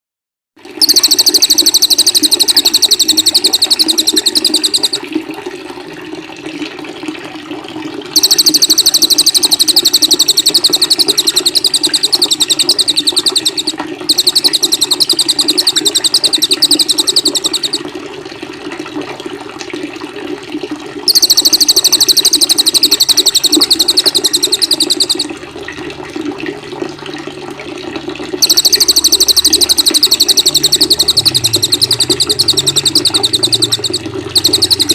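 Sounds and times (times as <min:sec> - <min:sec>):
running water: 0:00.6 - 0:34.9
songbird trilling: 0:00.8 - 0:05.0, 0:08.2 - 0:17.8, 0:21.1 - 0:25.3, 0:28.4 - 0:34.9.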